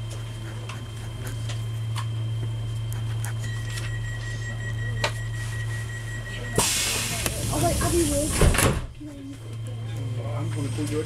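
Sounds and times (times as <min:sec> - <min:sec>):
train running hum: 0:06.6 - 0:08.6.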